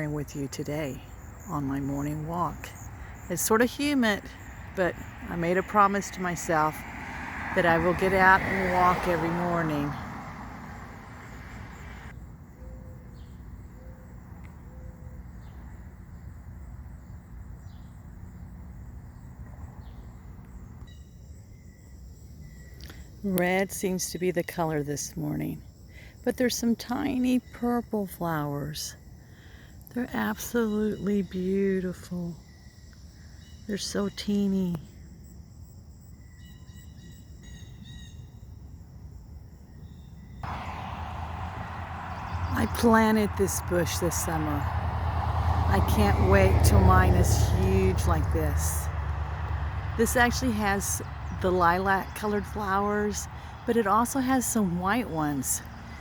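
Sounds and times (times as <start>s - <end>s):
insects trilling: 0.0s - 6.8s
faint insect hum: 0.0s - 7.6s, 9.8s - 46.9s
low wind rumble: 37.0s - 56.0s.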